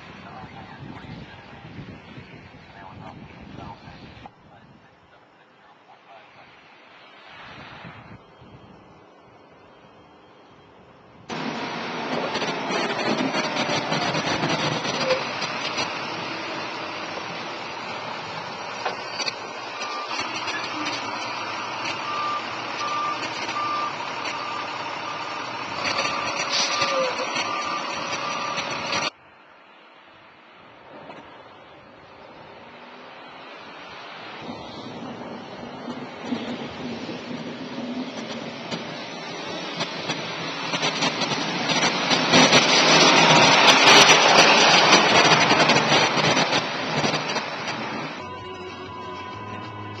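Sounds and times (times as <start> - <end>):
truck engine and road noise: 0.0 - 50.0
reversing alarm beeping: 8.2 - 11.6, 18.8 - 29.1, 48.1 - 50.0.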